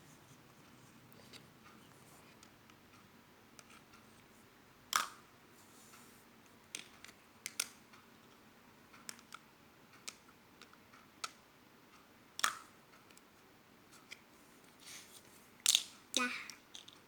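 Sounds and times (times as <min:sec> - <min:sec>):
small hard objects clicking: 0:15.6 - 0:17.0.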